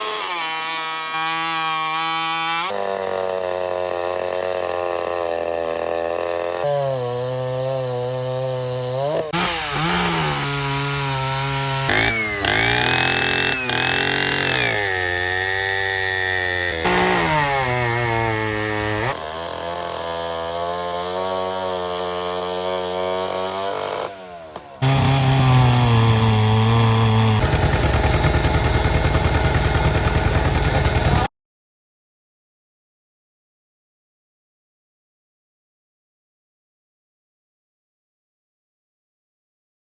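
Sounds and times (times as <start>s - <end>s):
chainsaws revving: 0.0s - 31.3s.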